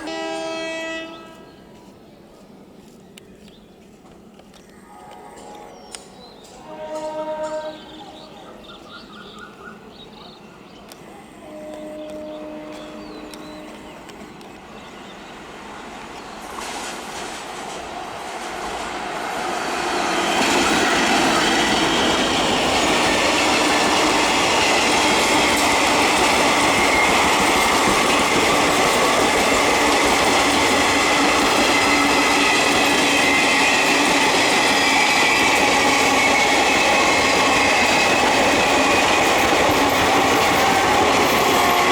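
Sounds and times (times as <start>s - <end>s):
train wheels rumbling on rail: 0.0s - 41.9s
high ringing squeal: 19.9s - 41.9s
wheels clickety-clack: 20.4s - 41.9s.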